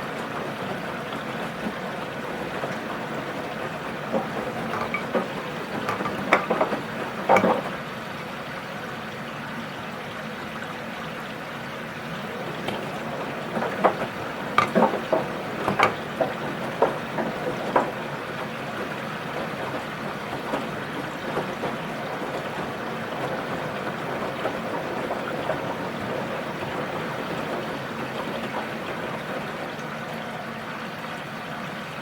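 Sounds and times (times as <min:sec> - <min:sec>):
washing machine drum turning: 0:00.1 - 0:07.9, 0:12.3 - 0:18.6
water sloshing: 0:00.5 - 0:07.9, 0:12.4 - 0:17.5.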